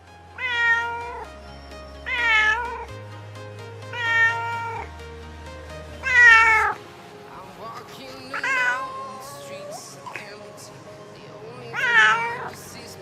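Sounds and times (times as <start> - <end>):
background music with low notes: 0.0 - 13.0
cat meowing: 0.4 - 1.2, 2.1 - 2.9, 3.9 - 4.9, 6.0 - 6.8, 8.4 - 10.2, 11.8 - 12.5.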